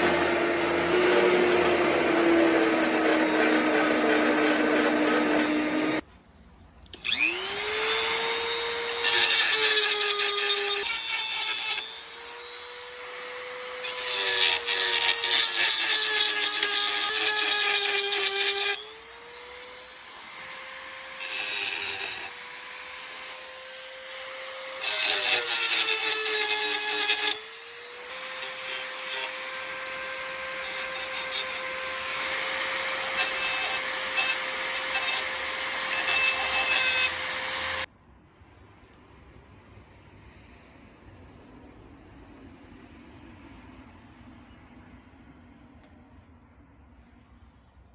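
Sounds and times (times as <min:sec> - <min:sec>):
power tool motor running: 0:00.0 - 0:06.0, 0:07.0 - 0:37.9
rough grinding noise: 0:00.0 - 0:06.0.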